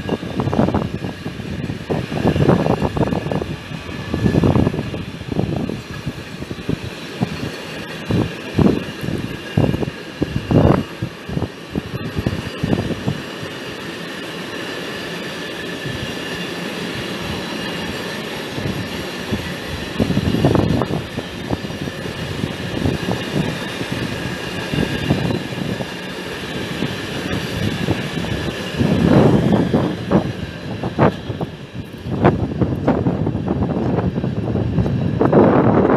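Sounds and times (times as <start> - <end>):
train running: 0.0 - 35.9.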